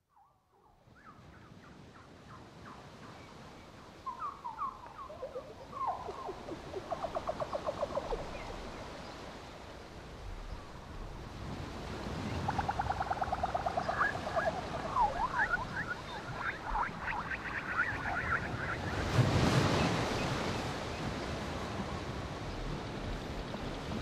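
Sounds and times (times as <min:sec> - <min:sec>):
birds chirping and whistling: 0:04.1 - 0:08.6, 0:12.4 - 0:20.3
steady rushing noise: 0:10.2 - 0:21.0.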